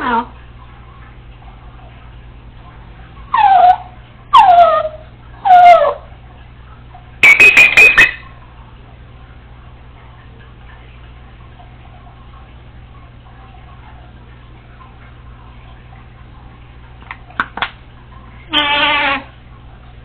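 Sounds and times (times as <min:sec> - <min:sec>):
parrot sharp beeps: 0:07.2 - 0:08.2
parrot whistled calls: 0:07.2 - 0:08.3.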